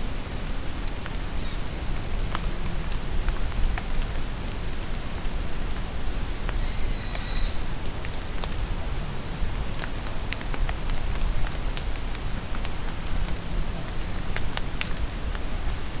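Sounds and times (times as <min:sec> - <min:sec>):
rain falling in a forest: 0:00.0 - 0:16.0
birds chirping: 0:05.9 - 0:07.8.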